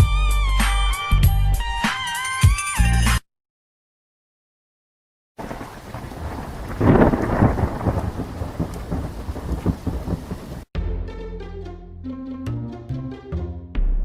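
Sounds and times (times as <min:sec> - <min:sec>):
steady rain: 0:05.4 - 0:10.7
thunder rumble: 0:05.4 - 0:10.7.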